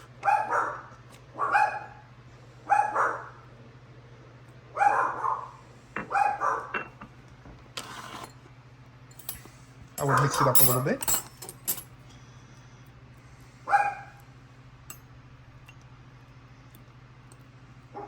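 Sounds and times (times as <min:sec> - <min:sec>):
dog barking: 0:00.2 - 0:03.4, 0:04.7 - 0:06.7, 0:13.7 - 0:14.2.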